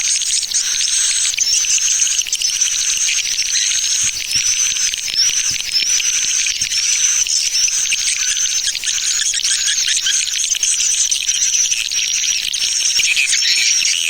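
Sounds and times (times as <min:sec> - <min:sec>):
swiftlets chirping and twittering: 0:00.0 - 0:14.0.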